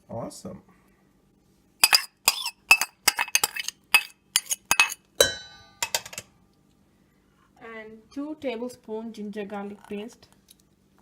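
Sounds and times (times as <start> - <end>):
spoon clinking against bowl: 1.8 - 6.0.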